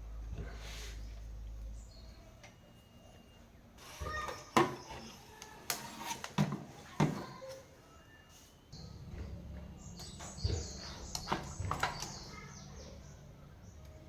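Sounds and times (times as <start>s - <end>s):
hard objects knocking and clicking: 4.3s - 7.4s, 10.3s - 12.3s.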